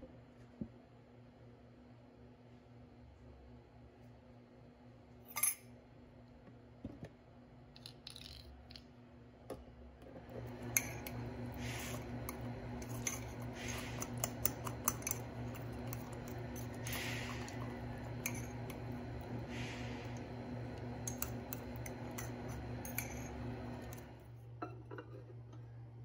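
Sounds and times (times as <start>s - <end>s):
fork clinking and scraping in mug: 10.6s - 18.9s, 21.0s - 24.0s.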